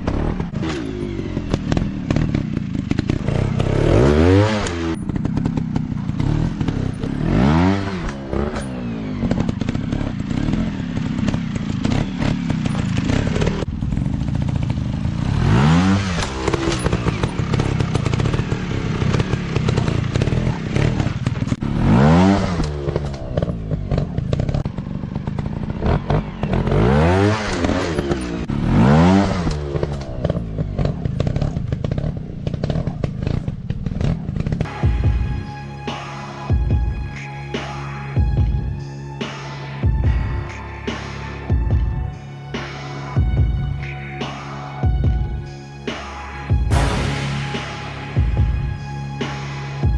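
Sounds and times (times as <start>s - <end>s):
dirt bike engines revving: 0.0s - 34.8s.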